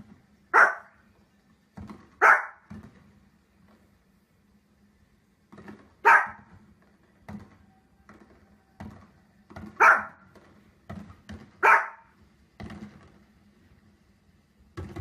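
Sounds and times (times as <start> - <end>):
dog barking: 0.5 - 1.0, 2.2 - 2.7, 6.0 - 6.5, 9.7 - 10.2, 11.6 - 12.2.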